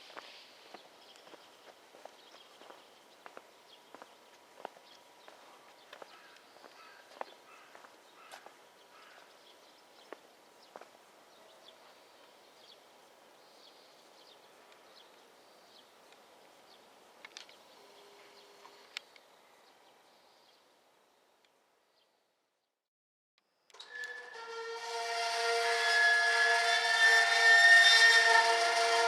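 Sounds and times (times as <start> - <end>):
small birds chirping: 0.1 - 22.2.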